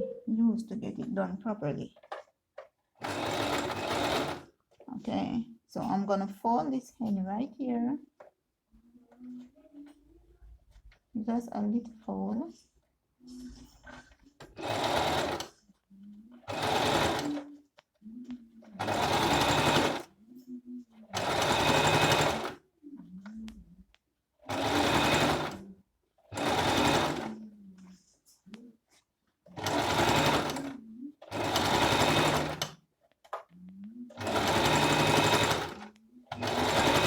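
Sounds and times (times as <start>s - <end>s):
electric sewing machine running: 3.0s - 4.4s, 14.6s - 15.5s, 16.5s - 17.4s, 18.8s - 20.1s, 21.2s - 22.6s, 24.5s - 25.6s, 26.3s - 27.3s, 29.6s - 30.7s, 31.3s - 32.7s, 34.2s - 37.0s.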